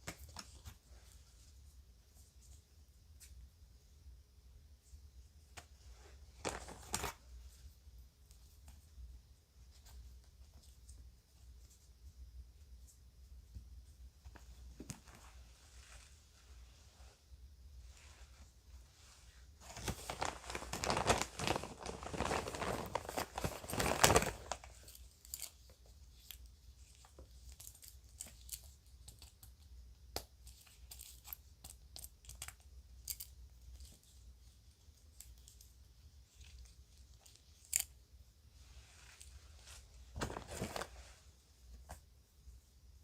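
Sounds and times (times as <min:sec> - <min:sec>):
bag crinkling and rustling: 0:19.6 - 0:25.5, 0:39.0 - 0:41.2.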